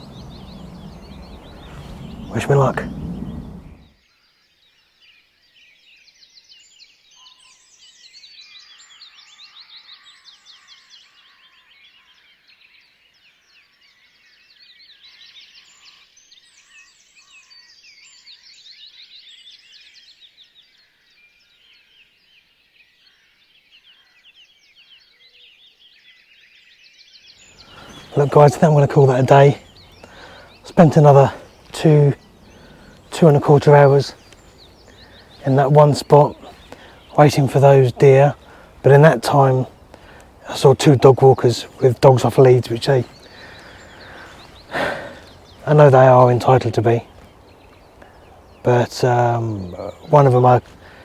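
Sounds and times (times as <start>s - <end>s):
birds chirping trills: 0.0s - 4.0s, 27.2s - 51.0s.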